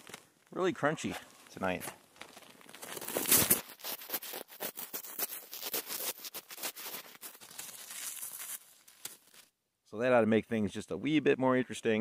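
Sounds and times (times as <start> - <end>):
footsteps crunching in snow: 1.0 - 9.5.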